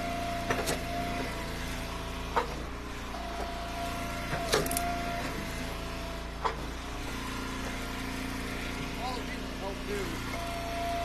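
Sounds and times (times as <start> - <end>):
hydraulic whine: 0.0 - 11.0
wood splitter engine running: 0.0 - 11.0
firewood splitting cracks: 4.2 - 5.0.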